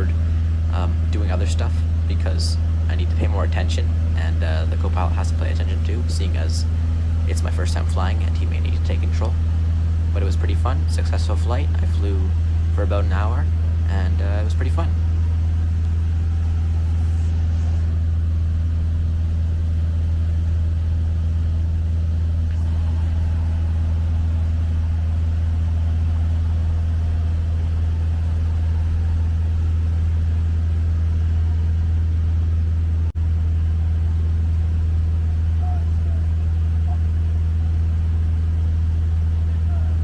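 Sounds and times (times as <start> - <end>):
airplane engine and propeller droning: 0.0 - 40.0.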